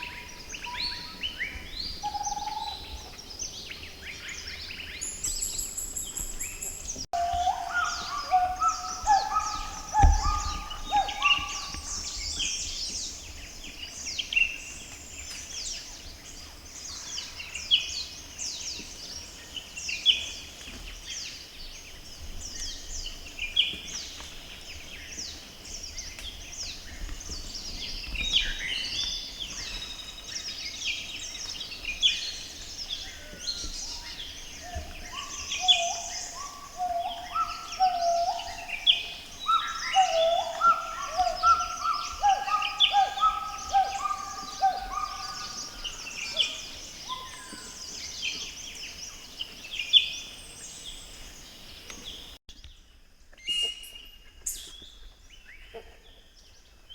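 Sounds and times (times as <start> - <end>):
chorus of birds calling: 4.3 - 13.4, 26.0 - 52.3
lower whistled bird notes: 5.0 - 12.6, 33.4 - 48.4.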